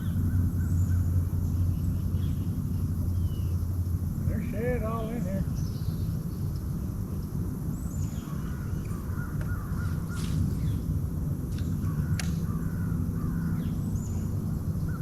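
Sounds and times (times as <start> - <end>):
steady low rumble: 0.0 - 15.0
sharp clicks: 11.6 - 12.4.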